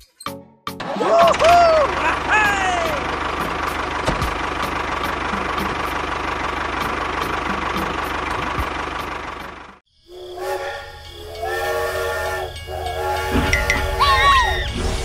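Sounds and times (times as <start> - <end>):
electronic train whistle: 10.0 - 15.0.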